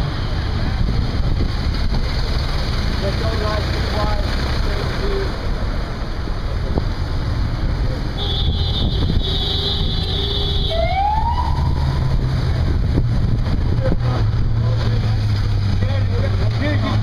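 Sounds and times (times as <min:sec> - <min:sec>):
traffic rumble: 0:00.0 - 0:17.0
wind: 0:00.0 - 0:17.0
police siren whoop: 0:10.7 - 0:11.9.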